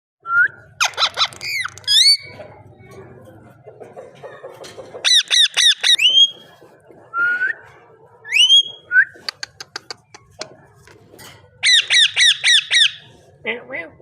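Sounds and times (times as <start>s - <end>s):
parakeet harsh screeches: 0.8s - 2.2s, 11.6s - 13.1s
parakeet chattering: 0.8s - 2.4s, 5.0s - 6.4s, 11.6s - 13.1s
parakeet whistling: 11.6s - 13.1s.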